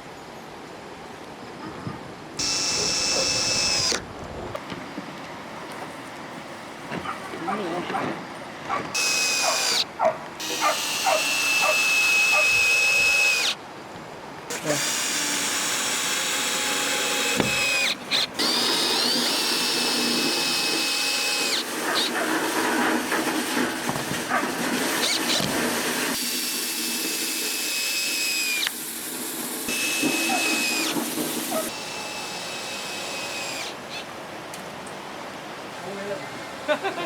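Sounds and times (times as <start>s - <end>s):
power drill whining: 2.4s - 4.0s, 8.9s - 13.6s, 14.5s - 22.2s, 24.9s - 29.0s, 29.6s - 34.1s.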